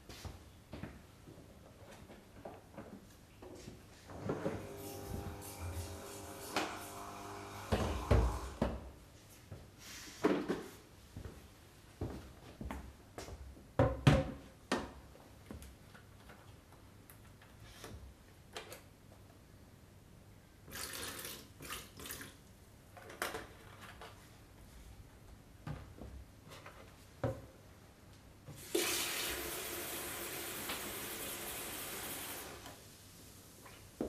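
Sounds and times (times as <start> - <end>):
water running: 28.6 - 34.0.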